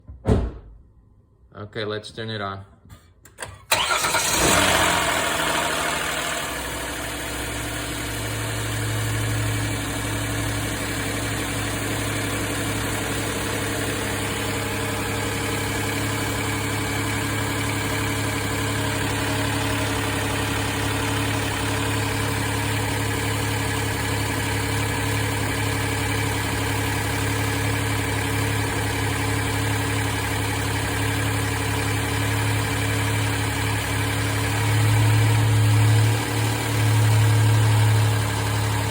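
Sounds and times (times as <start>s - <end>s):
car engine idling: 3.7s - 38.9s.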